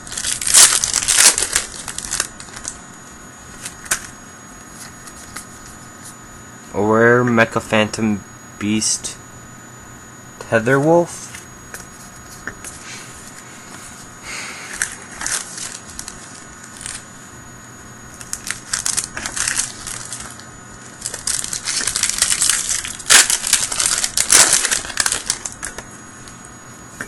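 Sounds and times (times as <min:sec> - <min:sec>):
foil wrapper crinkling: 0:00.0 - 0:02.8, 0:03.5 - 0:04.2, 0:14.6 - 0:17.1, 0:18.2 - 0:25.8.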